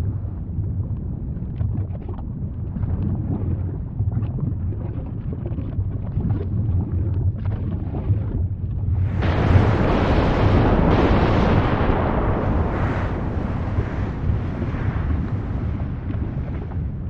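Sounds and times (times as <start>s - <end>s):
faint crackles: 4.1s - 17.0s
volcano rumbling: 6.3s - 17.0s.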